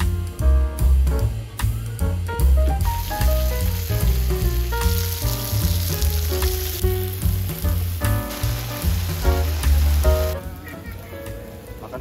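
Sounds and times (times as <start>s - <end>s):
background music with bass line: 0.0s - 10.5s
potatoes sizzling in hot oil: 2.4s - 12.0s.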